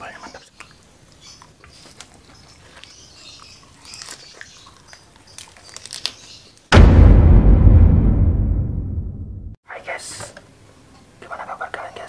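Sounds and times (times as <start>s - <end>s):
crisp crunches of chewing: 0.4s - 6.6s
loud deep hit: 6.7s - 9.6s.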